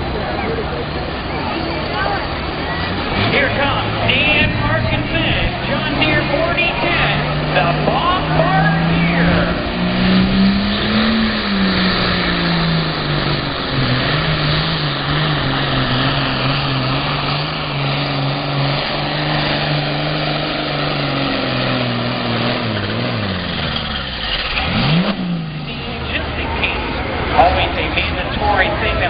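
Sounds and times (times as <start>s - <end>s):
tractor engine running at high revs: 0.0s - 29.0s.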